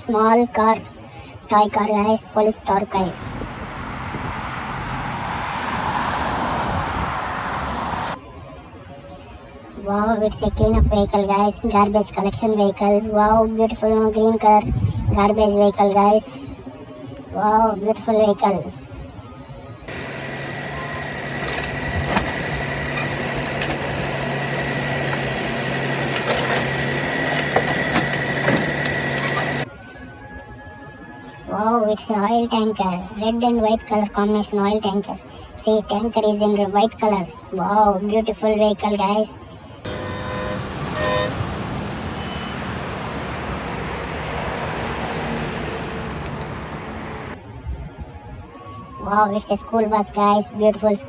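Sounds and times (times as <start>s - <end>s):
vehicle engine and road noise: 2.6s - 8.4s, 19.9s - 29.7s, 39.8s - 47.4s.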